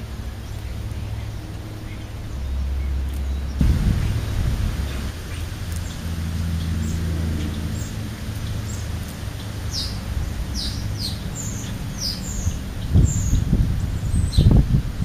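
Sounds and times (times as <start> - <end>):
birds chirping: 0.0 - 15.0
low thuds near microphone: 3.6 - 5.1.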